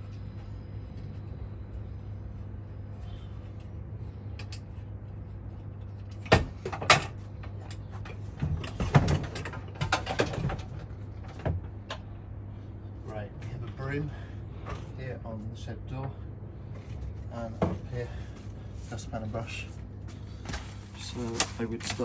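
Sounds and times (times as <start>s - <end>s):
tools clattering and rattling: 6.1s - 12.0s, 20.4s - 22.0s.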